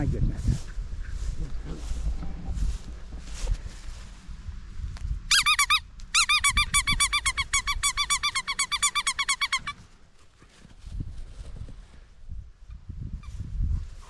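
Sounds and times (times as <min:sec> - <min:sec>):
squeaky dog toy squeaking: 0:05.3 - 0:09.8.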